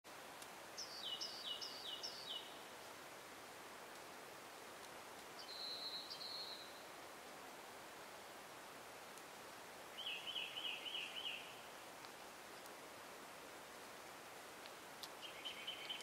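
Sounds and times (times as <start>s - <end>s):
steady forest hiss: 0.1s - 16.0s
bird singing: 0.8s - 2.6s, 5.4s - 6.9s, 9.9s - 11.7s, 15.2s - 16.0s.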